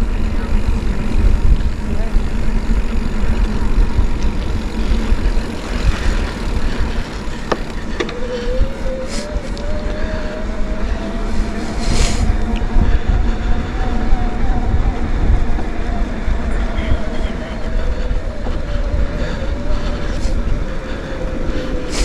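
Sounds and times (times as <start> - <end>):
bike rolling over dirt trail: 0.0 - 10.3
wind noise on microphone: 0.0 - 22.0.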